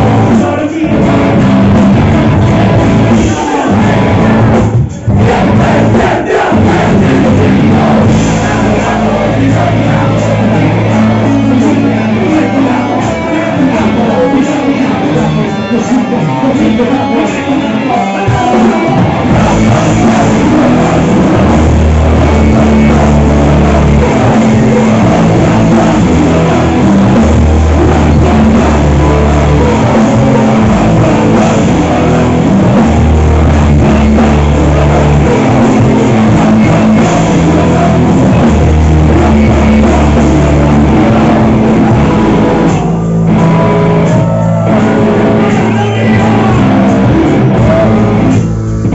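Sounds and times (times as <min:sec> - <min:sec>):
heavy rock band playing: 0:00.0 - 0:48.9.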